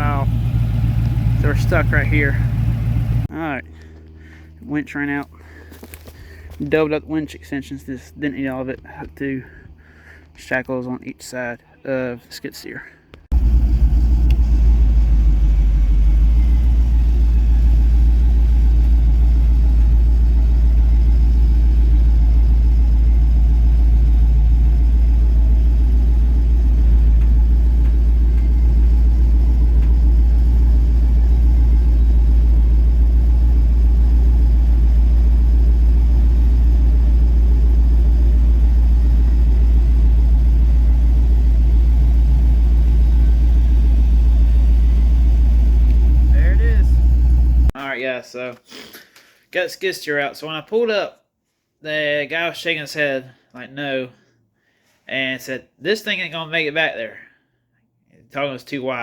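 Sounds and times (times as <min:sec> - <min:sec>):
vehicle engine rumbling: 0:00.0 - 0:11.8, 0:12.7 - 0:47.8.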